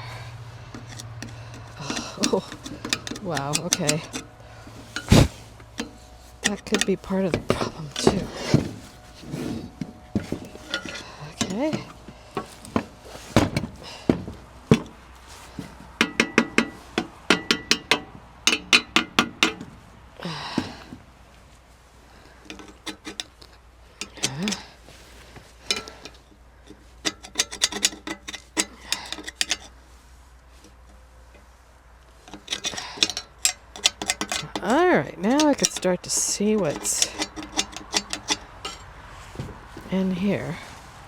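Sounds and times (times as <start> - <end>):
metal tools clinking together: 0.8 - 8.7, 10.2 - 12.8, 24.0 - 24.8, 25.6 - 29.7, 32.3 - 38.9.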